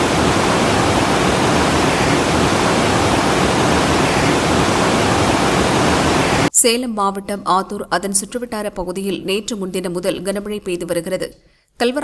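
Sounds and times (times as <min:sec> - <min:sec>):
fast-flowing floodwater rushing: 0:00.0 - 0:06.5.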